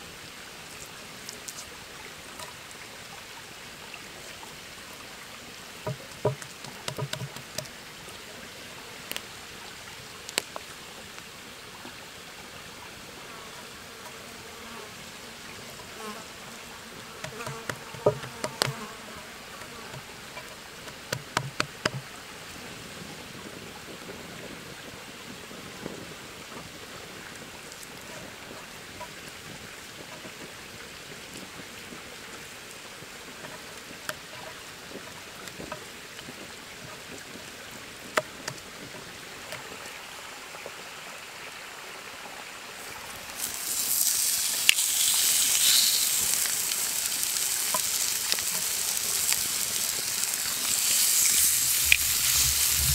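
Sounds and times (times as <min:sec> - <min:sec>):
steady outdoor hiss: 0:00.0 - 0:52.9
sharp clicks and knocks: 0:05.9 - 0:07.7, 0:17.2 - 0:18.8, 0:19.9 - 0:22.1
insects buzzing: 0:13.5 - 0:22.1, 0:43.0 - 0:52.9.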